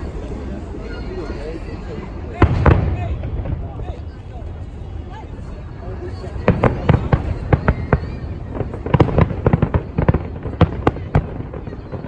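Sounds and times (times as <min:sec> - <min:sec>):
distant fireworks rumble: 0:00.0 - 0:12.0
fireworks bangs and pops: 0:02.4 - 0:04.7, 0:05.4 - 0:12.0.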